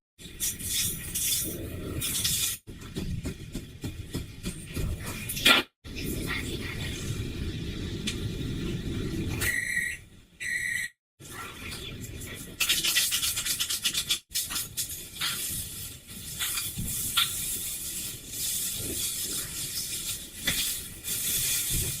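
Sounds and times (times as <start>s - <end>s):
rubbing and scraping: 11.9s - 22.0s.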